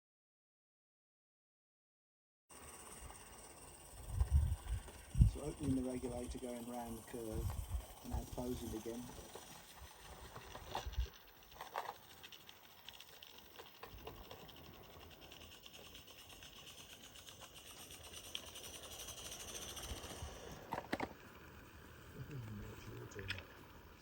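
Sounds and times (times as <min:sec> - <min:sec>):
steam locomotive hiss: 0:02.6 - 0:10.8.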